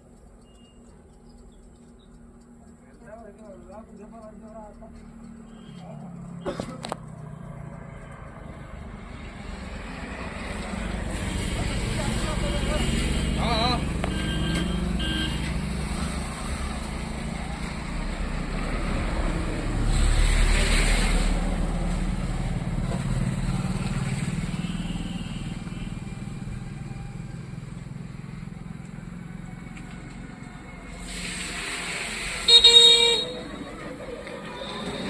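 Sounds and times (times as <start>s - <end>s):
road traffic rumble: 0.0s - 35.0s
vehicle passing close: 4.8s - 32.5s.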